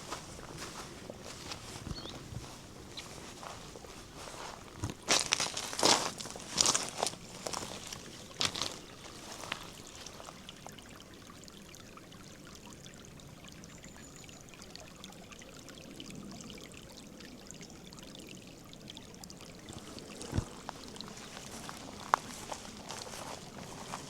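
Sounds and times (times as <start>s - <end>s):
sharp footsteps: 0.0s - 10.2s, 20.2s - 24.0s
shallow river water flowing: 0.0s - 24.0s.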